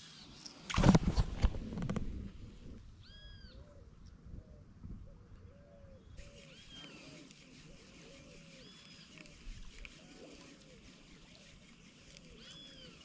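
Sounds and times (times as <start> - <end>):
faint bird calls: 3.0 - 13.0.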